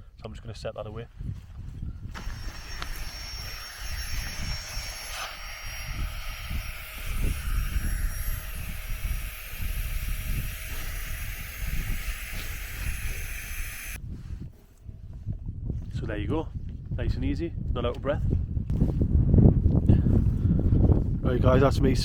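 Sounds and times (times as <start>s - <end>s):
wind buffeting microphone: 0.0s - 22.0s
battery air pump whirring: 2.1s - 14.0s.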